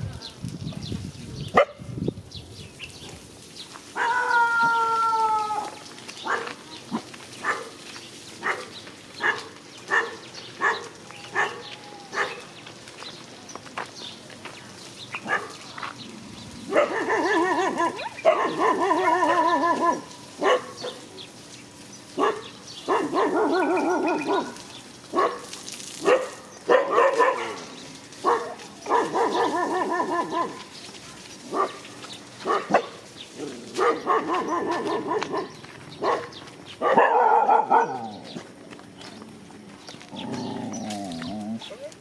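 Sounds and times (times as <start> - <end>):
dogs barking: 1.5 - 1.9, 6.2 - 7.8, 8.4 - 12.5, 15.2 - 15.9, 16.6 - 21.1, 22.1 - 30.8, 31.4 - 38.5.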